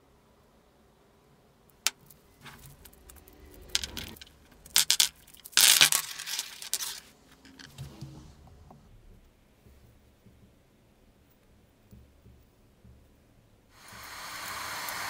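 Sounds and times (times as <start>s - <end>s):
metal parts rattling and scraping: 1.9s - 8.8s.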